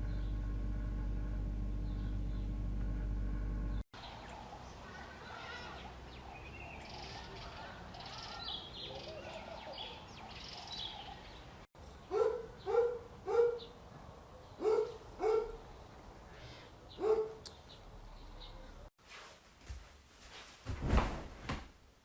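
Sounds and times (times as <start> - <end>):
faint birds chirping: 0.0 - 0.8, 1.6 - 2.7, 3.6 - 18.9
dog barking: 12.1 - 13.7, 14.6 - 15.6, 16.9 - 17.4.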